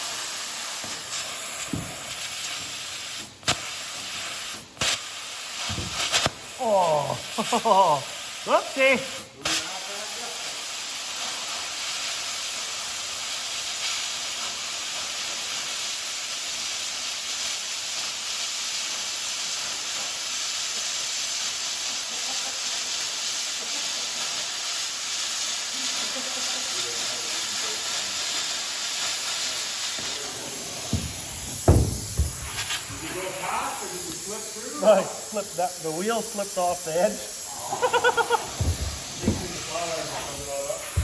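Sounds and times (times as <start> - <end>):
plasma cutter hissing: 0.0 - 41.0
low thump: 30.8 - 33.1, 38.5 - 39.7.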